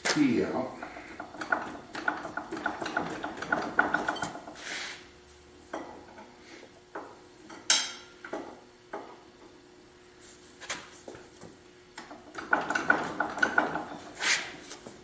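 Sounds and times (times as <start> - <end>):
faint steady hum: 0.0 - 12.5
metal tools knocking on metal: 0.8 - 4.4, 12.0 - 14.1.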